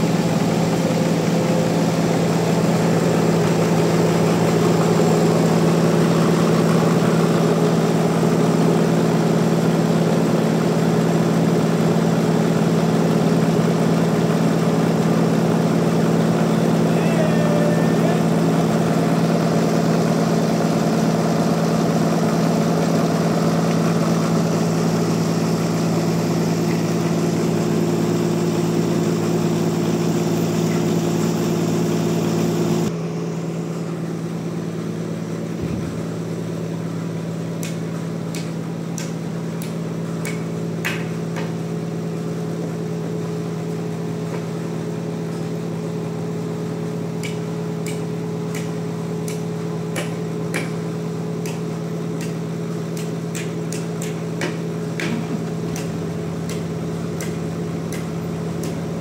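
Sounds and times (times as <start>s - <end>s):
sawmill engine running: 0.0s - 59.0s
sharp knocks: 50.0s - 50.8s.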